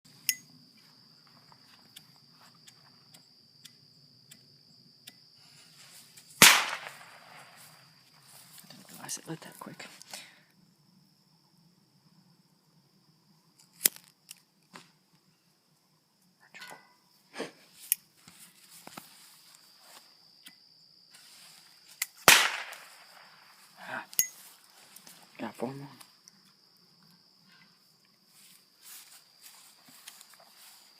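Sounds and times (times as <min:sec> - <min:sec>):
insect chirring: 0:00.1 - 0:30.9
firecracker bang: 0:06.4 - 0:07.6, 0:22.2 - 0:23.2
small crack: 0:06.4 - 0:07.7, 0:13.6 - 0:15.0, 0:21.9 - 0:23.3.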